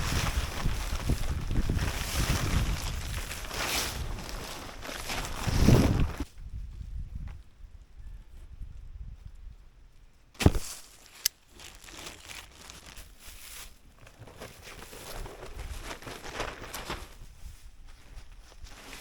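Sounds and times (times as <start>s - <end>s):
plastic tarp crinkling and rustling: 0.0s - 6.3s, 10.4s - 19.0s
loud sharp snap: 10.4s - 11.4s.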